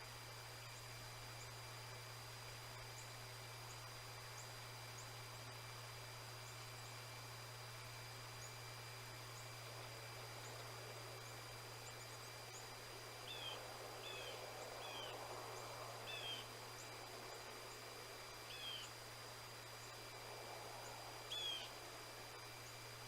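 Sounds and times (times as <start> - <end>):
faint background hiss: 0.0 - 23.0
steady low hum: 0.0 - 23.0
small bird call notes: 13.2 - 15.2, 16.1 - 16.5, 18.5 - 18.9, 21.3 - 21.8.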